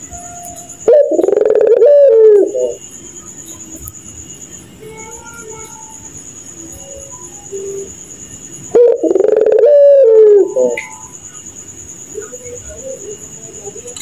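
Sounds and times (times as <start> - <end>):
steady high whine: 0.0 - 14.0
dove cooing: 0.7 - 2.9, 8.7 - 11.1.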